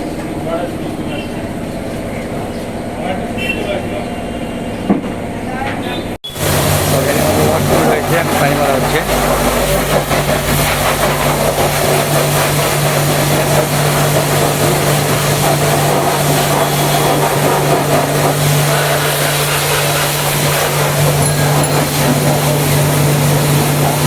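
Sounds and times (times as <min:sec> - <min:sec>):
pressure washer motor hum: 0:06.2 - 0:24.0
water jet hissing: 0:06.2 - 0:24.0.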